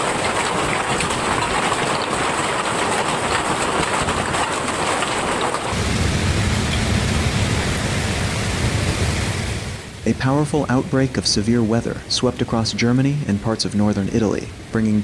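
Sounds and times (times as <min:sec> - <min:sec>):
heavy rain pelting down: 0:00.0 - 0:15.0.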